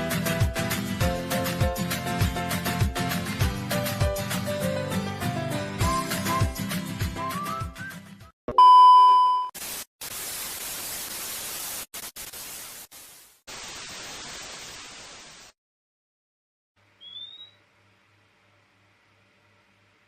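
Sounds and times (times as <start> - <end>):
loud steady beep tone: 8.5 - 9.5
static hiss: 9.6 - 15.5.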